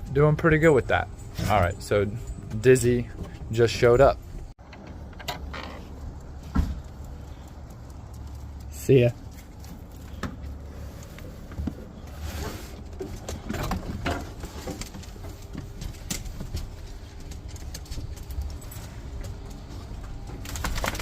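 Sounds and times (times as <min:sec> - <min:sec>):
dog paws pattering: 0:05.8 - 0:11.8.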